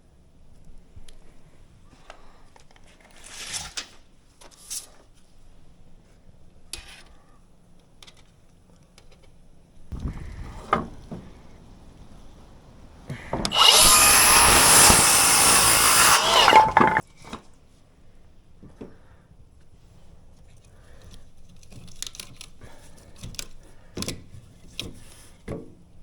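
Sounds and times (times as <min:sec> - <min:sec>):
power tool running: 0:13.5 - 0:17.0.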